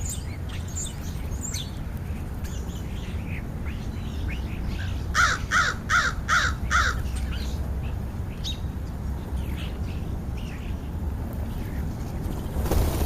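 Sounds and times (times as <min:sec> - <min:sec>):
crow cawing: 0:05.2 - 0:07.0.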